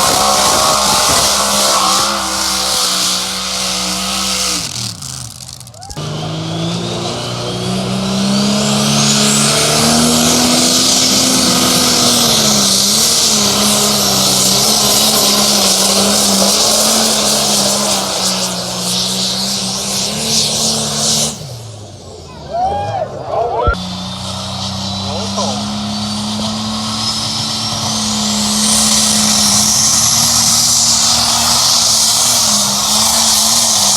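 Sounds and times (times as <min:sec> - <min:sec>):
pulling vehicle engine at full throttle: 0:00.0 - 0:33.9.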